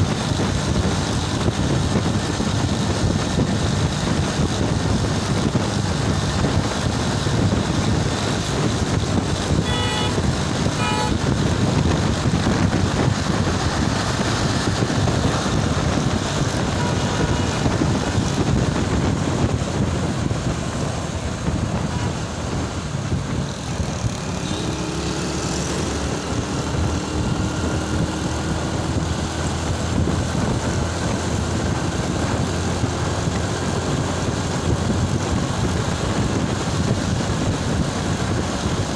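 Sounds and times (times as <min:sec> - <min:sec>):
road traffic noise: 0:00.0 - 0:38.9
vehicle engine: 0:00.0 - 0:38.9
horn toots: 0:09.5 - 0:11.5, 0:16.6 - 0:17.9.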